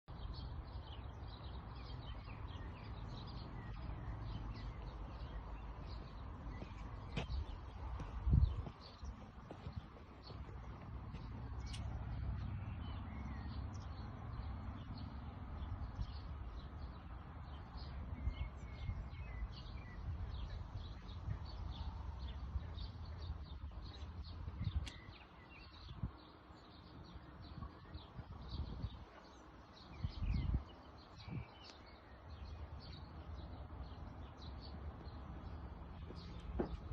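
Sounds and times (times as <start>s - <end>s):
small birds chirping: 0.1s - 36.9s
steady low rumble: 1.9s - 14.5s
dull low thumps: 3.1s - 12.4s, 35.9s - 36.9s.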